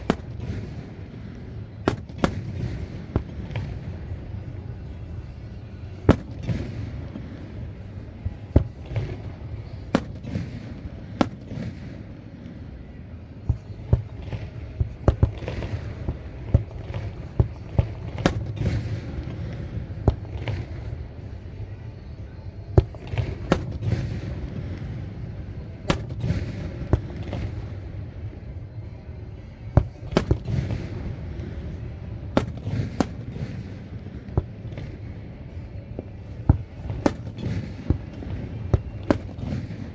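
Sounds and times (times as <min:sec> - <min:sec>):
fireworks bursting with sharp bangs: 0:00.0 - 0:12.8, 0:13.4 - 0:21.4, 0:22.0 - 0:39.9
continuous low rumble: 0:00.0 - 0:39.9.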